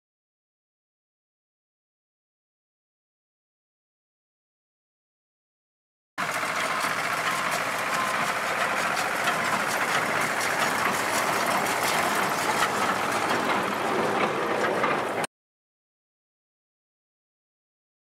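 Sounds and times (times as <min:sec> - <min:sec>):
clatter of working parts: 0:06.2 - 0:15.3
harvest machinery engine drone: 0:06.2 - 0:15.3.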